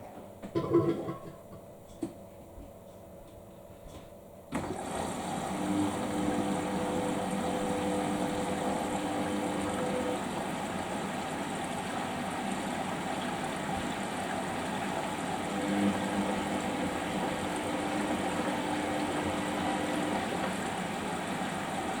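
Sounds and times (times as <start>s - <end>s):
water rushing through washing machine: 4.5s - 22.0s.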